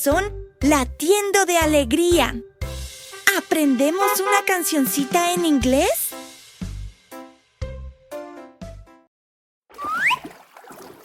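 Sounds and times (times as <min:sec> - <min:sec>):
cartoon splashing water: 0:09.7 - 0:11.0
short rising whistle: 0:09.8 - 0:10.3.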